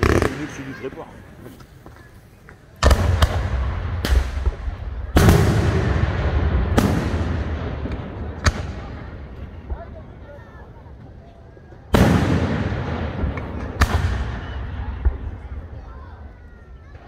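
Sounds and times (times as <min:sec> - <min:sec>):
firework booms echoing: 0:02.8 - 0:10.0, 0:11.9 - 0:15.7.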